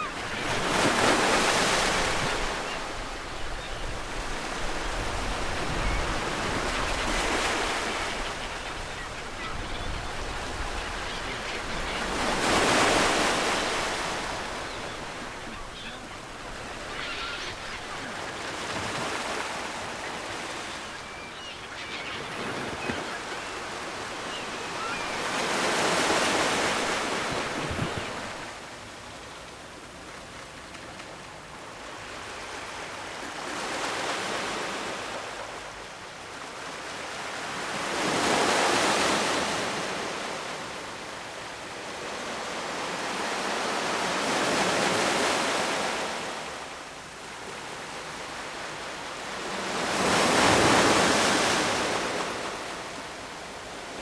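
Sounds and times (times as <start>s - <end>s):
ocean waves breaking on shore: 0.0s - 29.2s, 31.9s - 54.0s.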